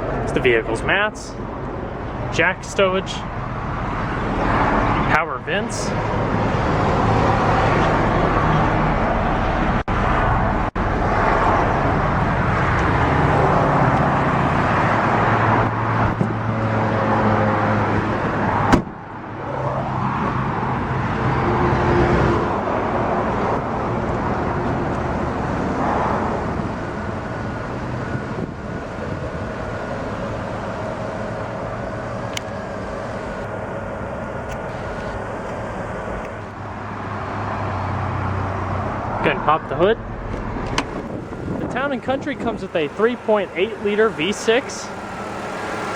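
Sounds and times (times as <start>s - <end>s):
van engine idling: 23.2s - 45.9s.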